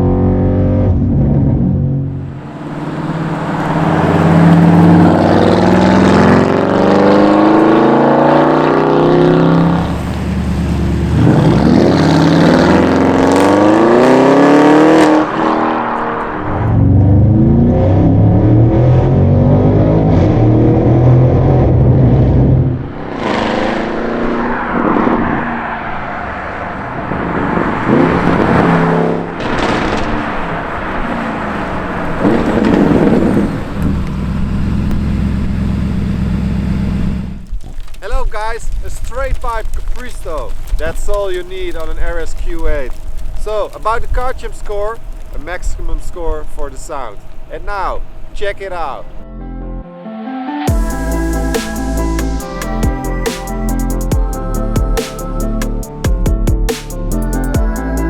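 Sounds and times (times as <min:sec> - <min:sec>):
car engine accelerating hard: 0:00.0 - 0:37.5
exhaust bursts: 0:22.6 - 0:36.8, 0:50.7 - 0:56.0.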